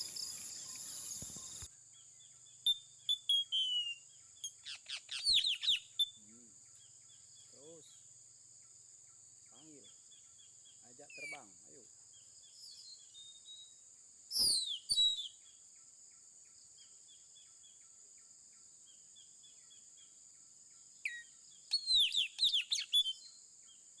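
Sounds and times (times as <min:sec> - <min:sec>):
bird shrill calls: 0:02.6 - 0:06.3, 0:14.3 - 0:15.4, 0:21.0 - 0:23.3.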